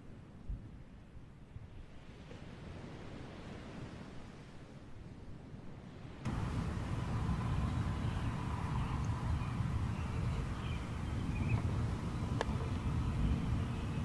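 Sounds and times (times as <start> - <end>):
low outdoor rumble: 6.3 - 14.0.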